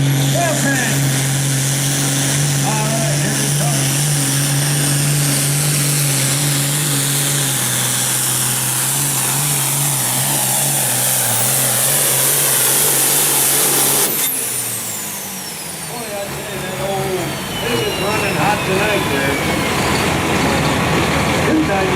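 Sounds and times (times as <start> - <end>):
diesel engine running under load: 0.0 - 21.9.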